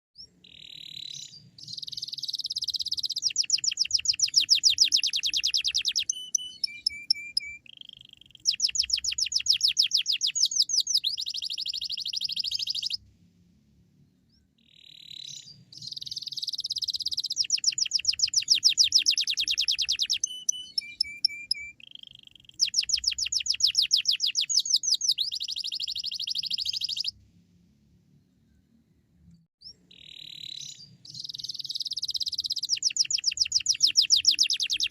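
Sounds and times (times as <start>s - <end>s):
canary singing: 0.2s - 13.0s, 14.6s - 27.2s, 29.6s - 34.9s.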